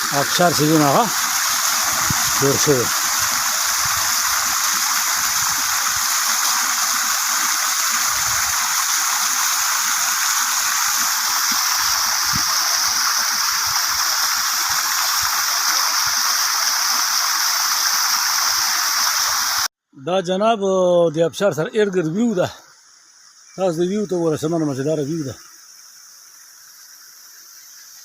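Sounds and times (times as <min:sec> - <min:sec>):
waterfall pouring: 0:00.0 - 0:19.7.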